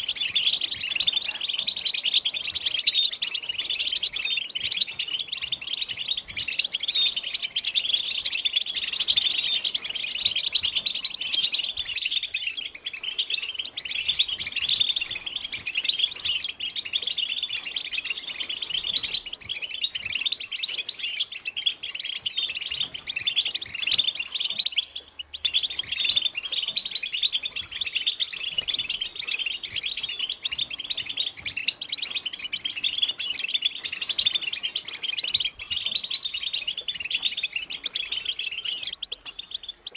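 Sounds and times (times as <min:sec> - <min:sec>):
goldfinches twittering: 0:00.0 - 0:39.9.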